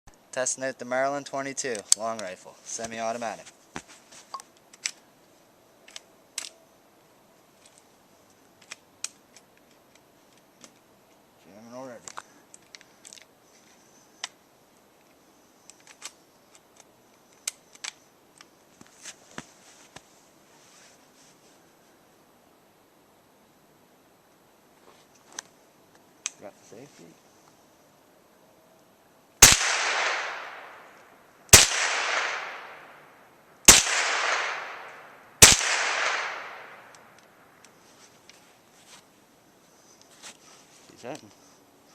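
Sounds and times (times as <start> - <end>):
rifle action clicking: 33.7 - 37.3.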